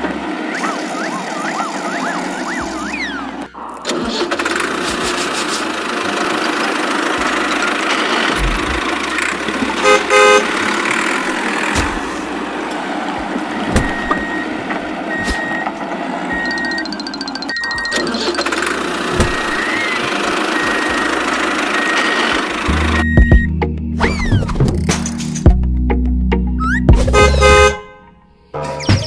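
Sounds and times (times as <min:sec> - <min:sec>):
vehicle engine running: 0:00.0 - 0:27.8
horn honking: 0:09.0 - 0:12.4, 0:26.6 - 0:28.7
short high beeps: 0:16.3 - 0:18.1.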